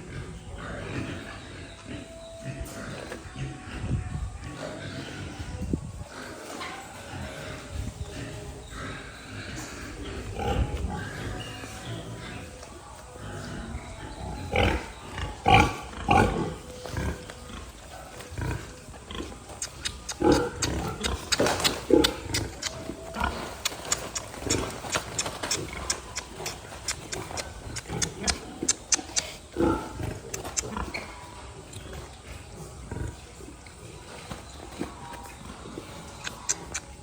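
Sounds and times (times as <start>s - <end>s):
pigs calling: 0.0s - 37.0s
sharp clicks: 19.6s - 22.9s, 23.5s - 29.4s, 36.2s - 37.0s.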